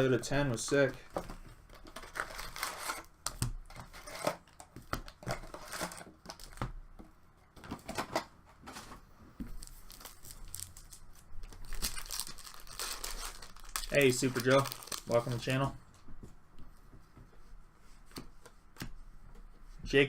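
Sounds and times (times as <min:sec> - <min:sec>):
plastic wrapping crinkling and tearing: 0:01.8 - 0:03.1, 0:09.6 - 0:15.7.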